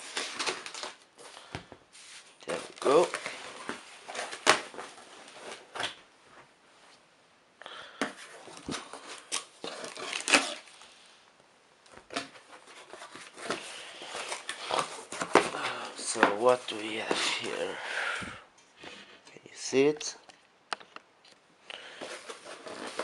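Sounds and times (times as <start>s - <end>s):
cardboard box rustling and scraping: 22.0s - 23.0s.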